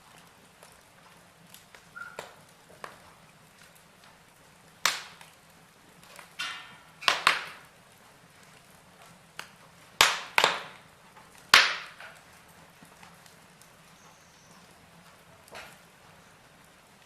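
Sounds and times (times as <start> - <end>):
logs crackling and popping: 0.0 - 17.0.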